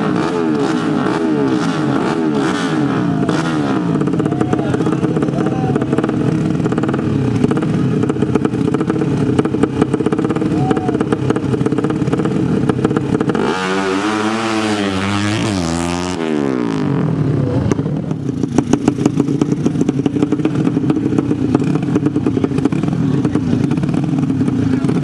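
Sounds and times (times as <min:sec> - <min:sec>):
motorcycle engine revving: 0:00.0 - 0:25.0
motorcycle engine steady revs: 0:00.0 - 0:25.0.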